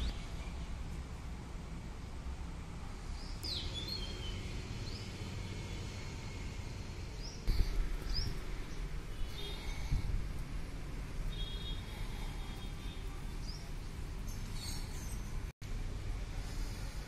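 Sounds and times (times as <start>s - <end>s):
birds chirping: 3.1s - 10.5s, 11.3s - 15.5s.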